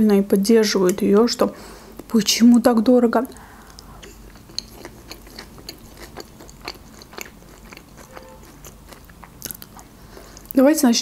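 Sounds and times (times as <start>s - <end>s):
chewing salad crunches: 3.6s - 10.6s.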